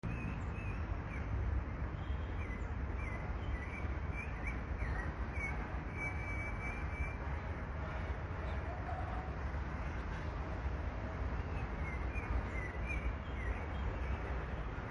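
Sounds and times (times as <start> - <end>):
bird chirping: 2.1 - 7.2, 11.5 - 14.3.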